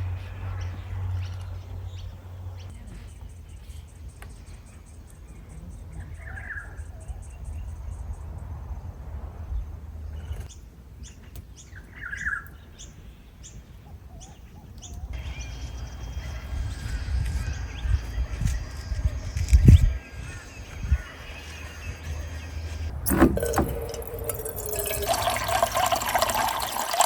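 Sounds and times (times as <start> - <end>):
wind rumble on microphone: 6.0 - 10.5, 16.3 - 22.2
birds chirping and calling: 10.4 - 22.9.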